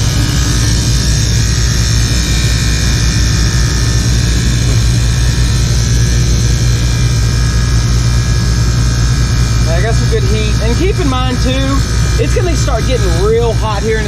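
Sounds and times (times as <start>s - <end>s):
rooftop unit hum and hiss: 0.0s - 14.0s.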